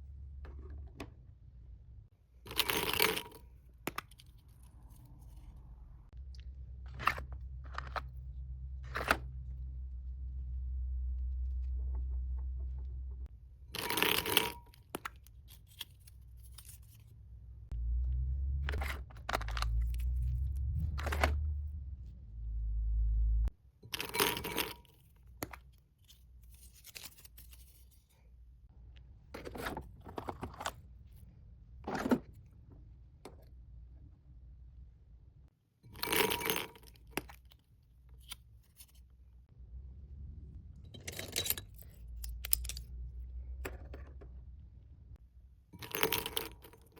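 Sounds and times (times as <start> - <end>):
low rumble of handling: 4.5 - 13.3, 17.6 - 23.5.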